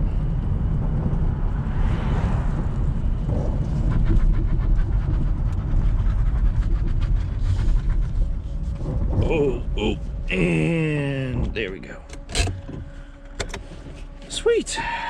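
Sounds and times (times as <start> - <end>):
car road rumble: 0.0 - 15.0
interior clicks and rattles: 3.2 - 14.8.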